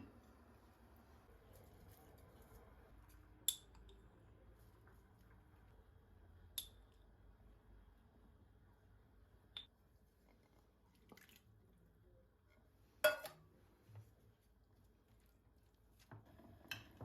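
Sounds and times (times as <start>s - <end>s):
glassware clinking: 13.0s - 13.4s.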